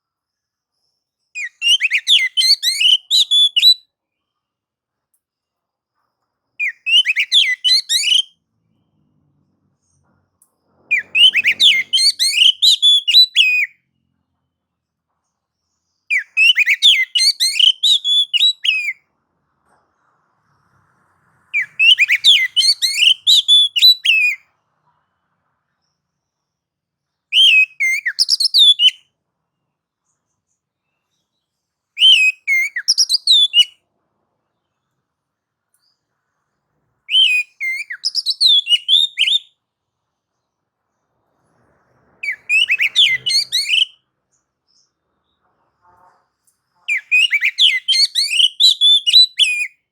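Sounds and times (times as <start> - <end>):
songbird singing rapid high notes: 1.4 - 3.8, 6.6 - 8.3, 10.9 - 13.7, 16.1 - 19.0, 21.5 - 24.4, 37.1 - 39.5, 42.2 - 44.0, 46.9 - 49.9.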